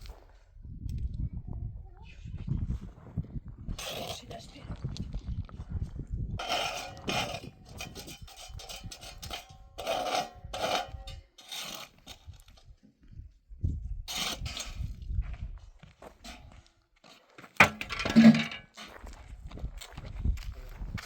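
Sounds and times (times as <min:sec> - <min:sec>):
rough scraping strokes: 0:06.4 - 0:12.4, 0:14.1 - 0:15.0.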